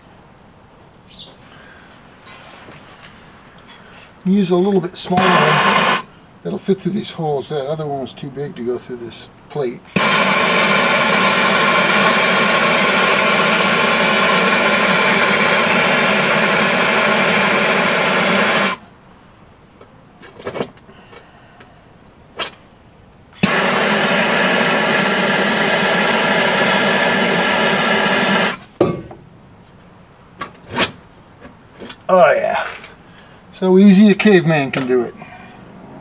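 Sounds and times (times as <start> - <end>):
electric drill boring sheet metal: 5.1 - 6.0, 9.9 - 18.8, 23.4 - 28.6.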